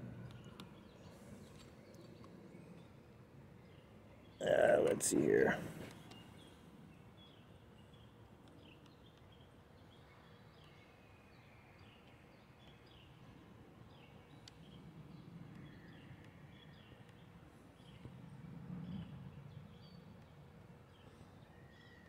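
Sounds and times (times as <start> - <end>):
faint bird chirps: 21.0 - 22.0.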